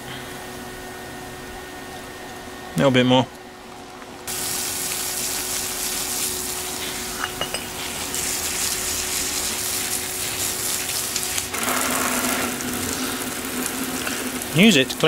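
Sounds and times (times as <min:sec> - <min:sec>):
acid fizzing on metal: 0:04.3 - 0:15.0.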